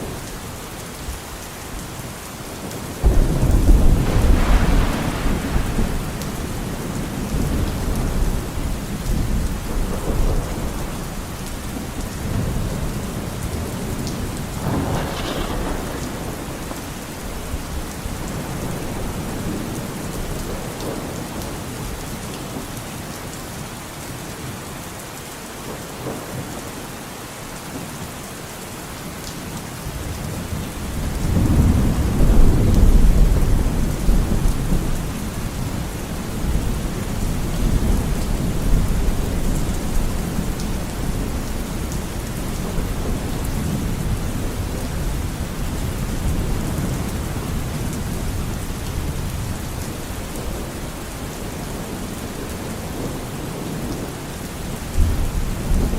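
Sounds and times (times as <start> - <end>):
steady rain: 0.0 - 55.9
rolling thunder: 3.0 - 21.2, 30.8 - 50.8.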